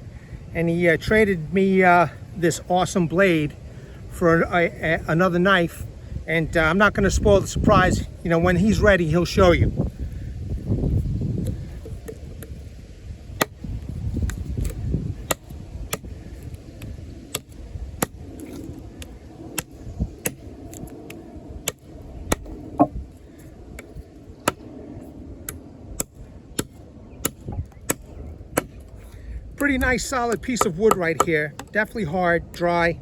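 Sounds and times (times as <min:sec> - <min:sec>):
knife chopping dry wood: 0:13.3 - 0:20.9, 0:21.6 - 0:23.0, 0:23.8 - 0:24.6, 0:25.5 - 0:31.9.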